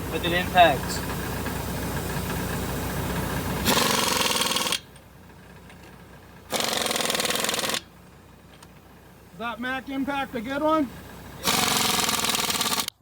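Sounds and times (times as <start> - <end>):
engine idling: 0.0 - 13.0
impact wrench rattling: 3.6 - 7.9, 11.4 - 13.0.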